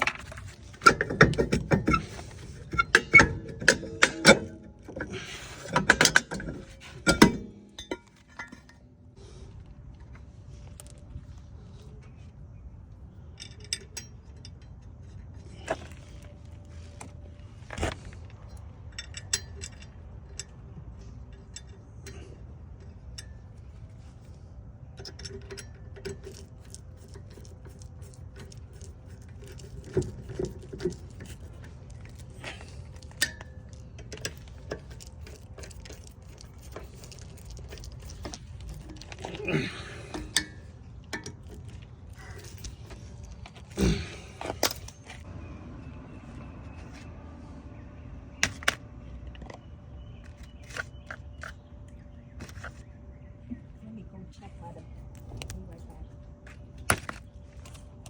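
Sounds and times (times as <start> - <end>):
metal brake parts clinking: 0.0 - 9.0, 13.0 - 45.3.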